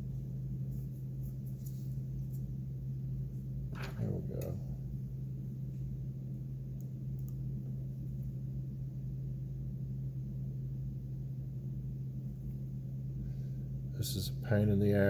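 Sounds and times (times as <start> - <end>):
steady low hum: 0.0 - 15.0
faint small clicks: 6.8 - 7.4.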